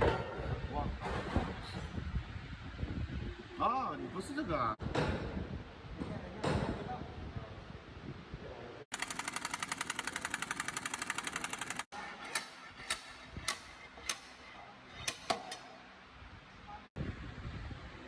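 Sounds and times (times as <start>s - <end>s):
pneumatic impact wrench rattling: 8.9s - 15.7s.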